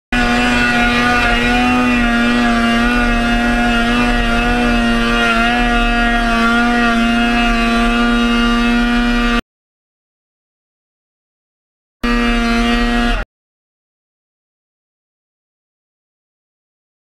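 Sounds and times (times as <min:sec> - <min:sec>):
snowmobile engine drone: 0:00.1 - 0:09.4, 0:12.0 - 0:13.3.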